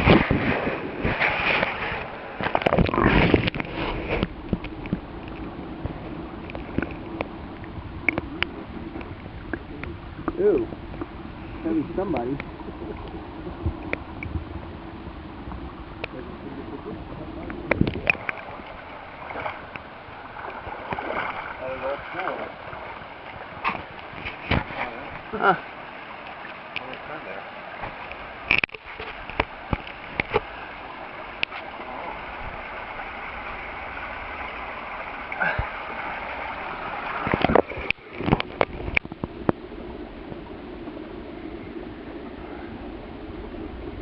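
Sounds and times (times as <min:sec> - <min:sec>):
creek water flowing: 0:00.0 - 0:44.0
sharp knocks or splashes: 0:20.4 - 0:25.3.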